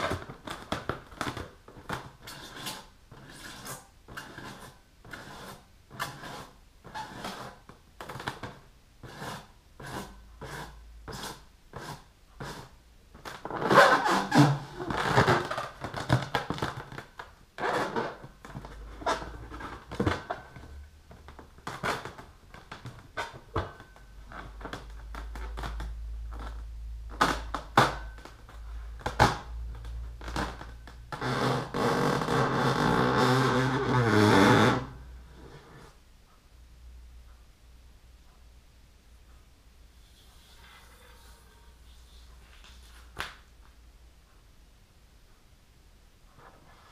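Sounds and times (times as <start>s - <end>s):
squeaky rubbing on balloon: 0.0s - 8.3s, 9.0s - 16.3s, 17.6s - 20.7s, 30.2s - 35.9s, 40.0s - 43.1s
balloon squeal sliding down: 40.0s - 42.4s.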